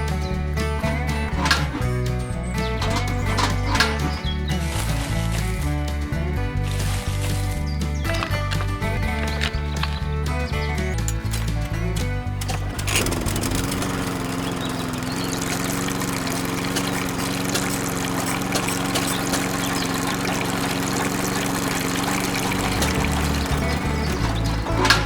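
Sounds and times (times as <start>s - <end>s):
small electric motor humming: 12.4s - 25.0s
water pouring and trickling: 12.4s - 25.0s.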